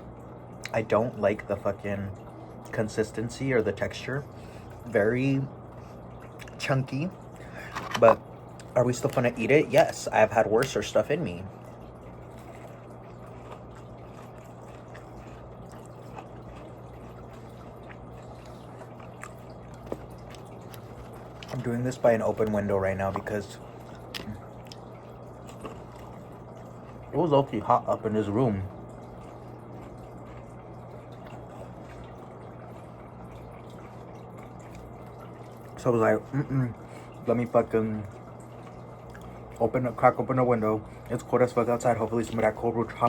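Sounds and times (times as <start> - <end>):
room noise hum and hiss: 0.0 - 43.0
wet chewing clicks: 11.8 - 28.0, 29.0 - 35.8, 38.0 - 39.8.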